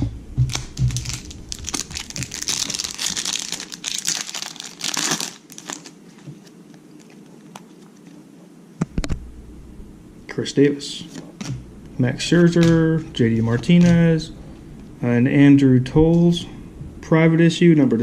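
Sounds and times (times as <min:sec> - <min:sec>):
wrapper crinkling and tearing: 0:00.5 - 0:07.8.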